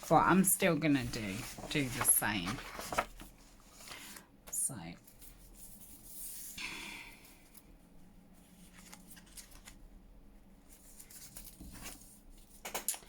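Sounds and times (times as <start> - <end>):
tape and paper handling: 0.0 - 4.2
light paper rustling: 0.0 - 4.3, 8.4 - 10.0, 10.6 - 13.0.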